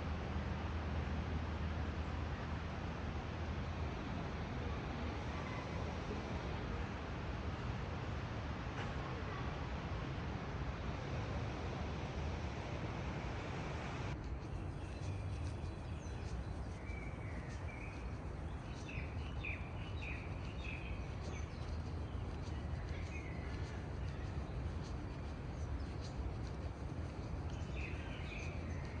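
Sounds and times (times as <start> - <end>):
steady background hiss: 0.0 - 29.0
small birds chirping: 14.2 - 29.0.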